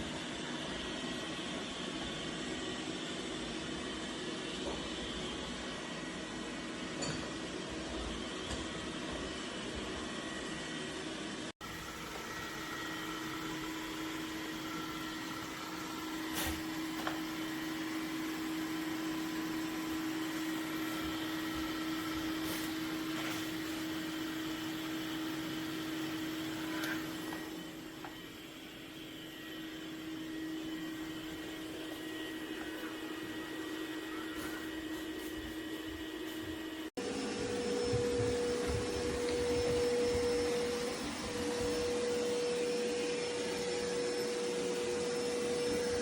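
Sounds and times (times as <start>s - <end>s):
robot vacuum motor humming: 11.6s - 46.0s.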